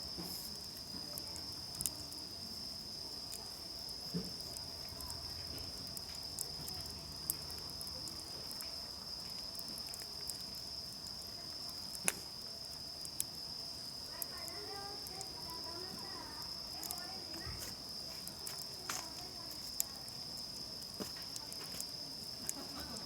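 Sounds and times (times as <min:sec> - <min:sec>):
campfire crackling and popping: 0:00.1 - 0:23.0.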